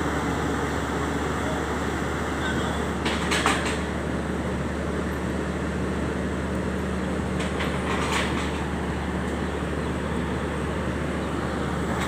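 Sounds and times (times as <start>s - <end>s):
diesel engine droning: 0.0s - 12.0s
short metallic knocks: 3.0s - 3.9s, 7.4s - 8.7s.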